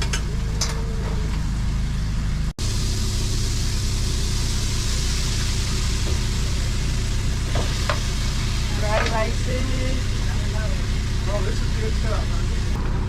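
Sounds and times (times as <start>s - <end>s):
machine hum: 0.0s - 13.0s
hiss: 2.6s - 12.8s.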